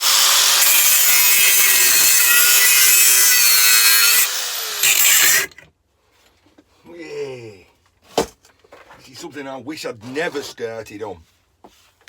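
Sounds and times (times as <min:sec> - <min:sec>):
angle grinder cutting metal: 0:00.0 - 0:05.6.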